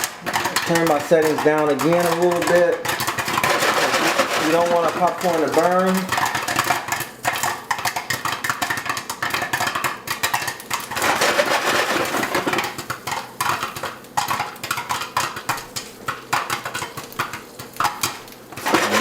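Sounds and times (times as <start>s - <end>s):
popcorn popping in a pot: 0.0s - 19.0s
pot lid rattling: 0.0s - 19.0s.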